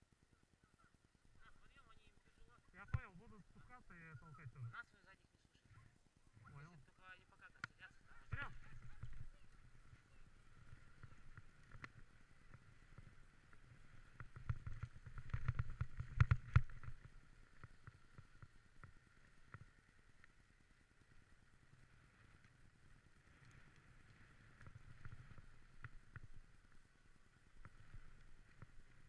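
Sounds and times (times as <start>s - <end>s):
sled runners scraping snow: 7.9s - 29.0s.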